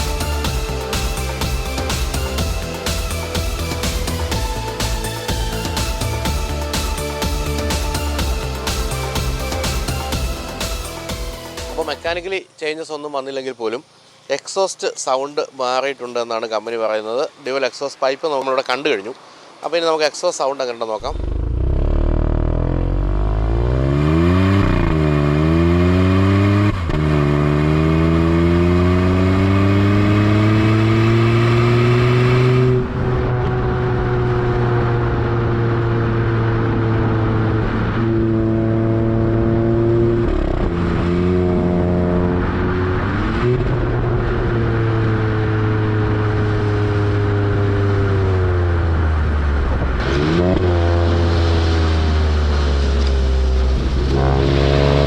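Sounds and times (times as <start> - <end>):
car engine accelerating: 21.0 - 55.0.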